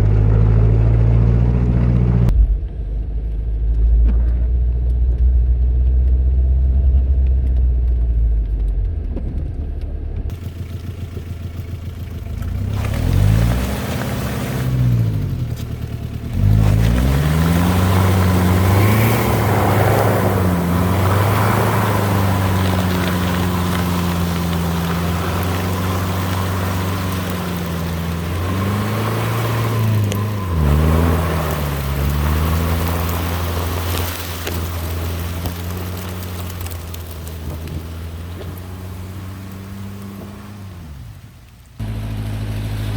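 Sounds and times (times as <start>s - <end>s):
diesel engine revving: 0.0s - 2.6s, 4.7s - 42.9s.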